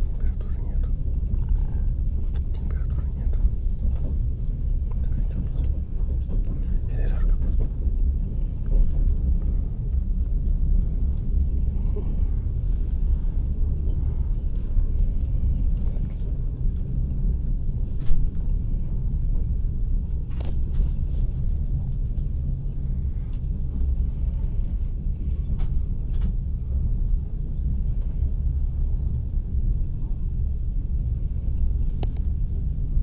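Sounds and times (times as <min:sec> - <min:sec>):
train rumbling on track: 0:00.0 - 0:33.0.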